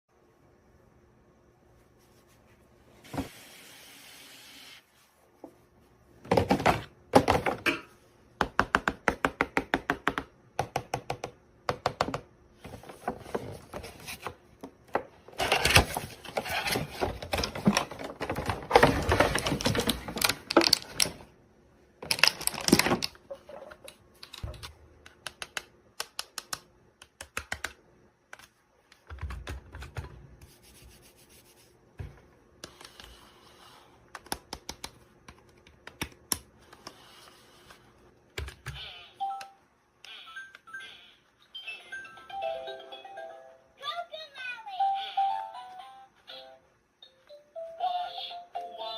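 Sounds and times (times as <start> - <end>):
sharp clicks and taps: 24.3 - 29.6.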